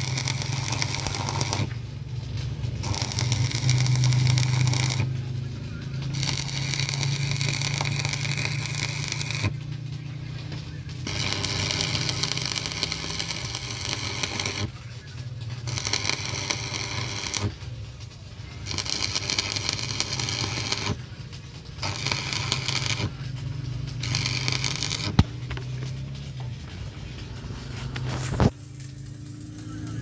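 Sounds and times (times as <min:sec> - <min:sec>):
power tool working metal: 0:00.0 - 0:01.7, 0:02.8 - 0:05.2, 0:06.1 - 0:09.6, 0:11.0 - 0:14.7, 0:15.7 - 0:17.5, 0:18.7 - 0:21.0, 0:21.8 - 0:23.1, 0:23.8 - 0:26.0
steady low hum: 0:00.0 - 0:30.0.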